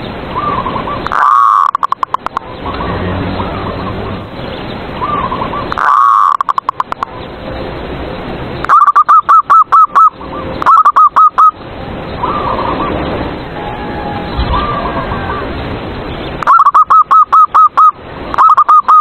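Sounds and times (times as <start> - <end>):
dove cooing: 5.0 - 6.9, 13.6 - 15.6, 16.4 - 19.0.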